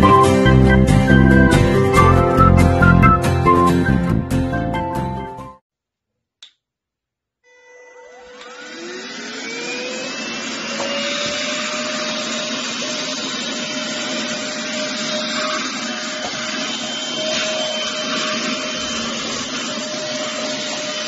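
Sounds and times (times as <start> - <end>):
handheld vacuum cleaner motor whine: 7.5 - 21.0.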